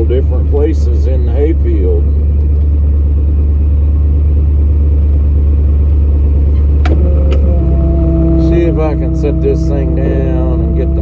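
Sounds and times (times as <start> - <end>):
truck engine droning: 0.0 - 11.0.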